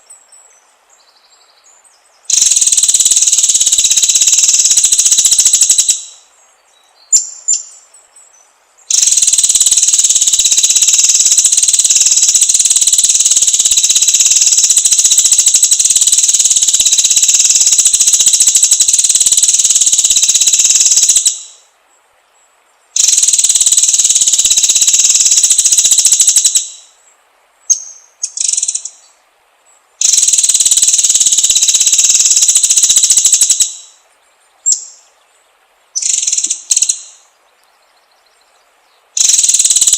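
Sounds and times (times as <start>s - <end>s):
high-pitched insect drone: 2.3s - 6.2s, 8.9s - 21.6s, 23.0s - 26.9s, 30.0s - 34.0s, 39.2s - 39.9s.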